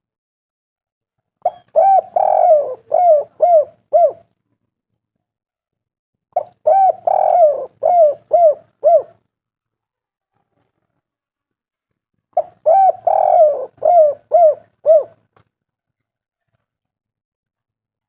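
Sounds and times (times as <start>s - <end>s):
dove cooing: 1.4s - 4.3s, 6.4s - 9.3s, 12.4s - 15.3s.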